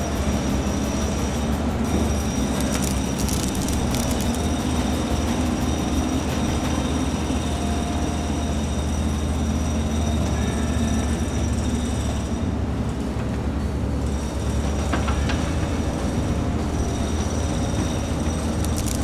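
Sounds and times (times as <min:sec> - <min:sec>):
heavy machinery engine rumble: 0:00.0 - 0:07.8, 0:12.5 - 0:19.0.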